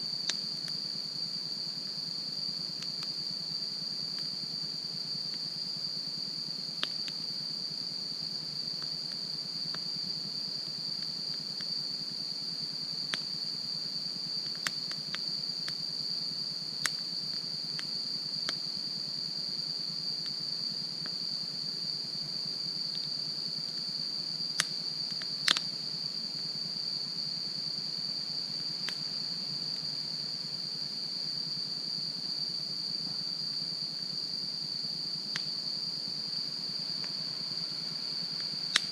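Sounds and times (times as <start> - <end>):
insects chirring: 0.0 - 38.9
wood fire crackling and popping: 14.4 - 15.8, 24.6 - 25.7.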